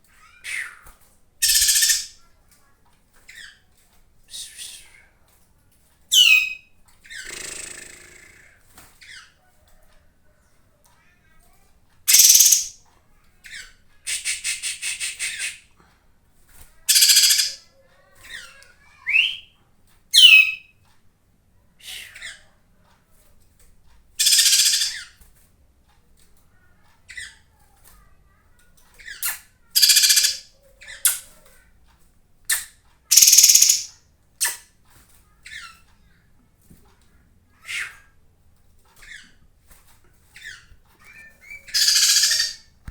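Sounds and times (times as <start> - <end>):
raspy bird calls: 1.4 - 2.2, 6.1 - 9.3, 12.1 - 12.8, 16.9 - 17.6, 20.2 - 20.7, 24.2 - 25.1, 29.8 - 31.3, 33.1 - 34.6, 40.4 - 42.7.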